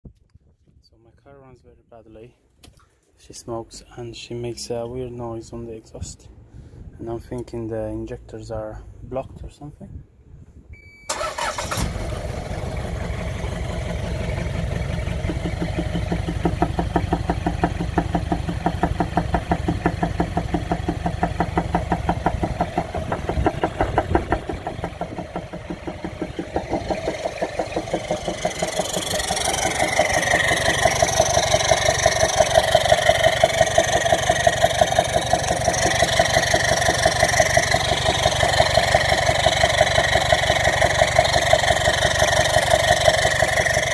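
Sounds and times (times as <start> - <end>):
diesel engine starting and running: 10.8 - 43.9
exhaust popping: 11.1 - 43.9.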